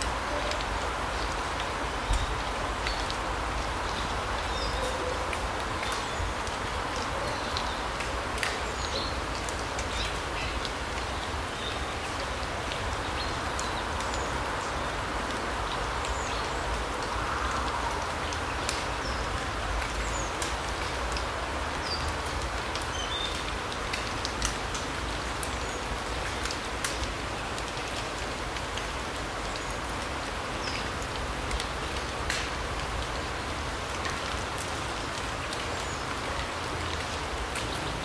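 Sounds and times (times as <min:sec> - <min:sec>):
light ticks: 0:05.3 - 0:08.6, 0:15.3 - 0:25.5, 0:26.2 - 0:33.1.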